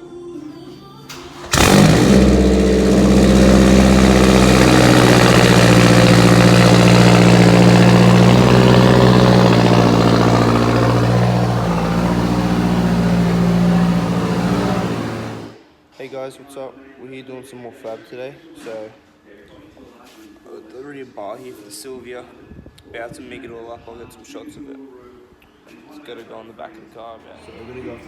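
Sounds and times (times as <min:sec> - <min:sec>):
car engine running loud: 0:01.2 - 0:15.6.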